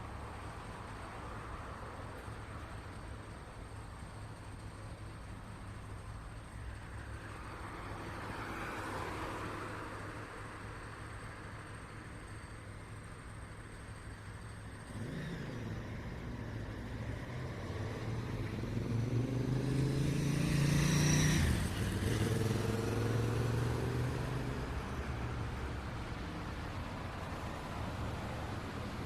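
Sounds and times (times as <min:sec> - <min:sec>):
street traffic: 0:00.0 - 0:29.0
vehicle accelerating past: 0:14.9 - 0:25.4.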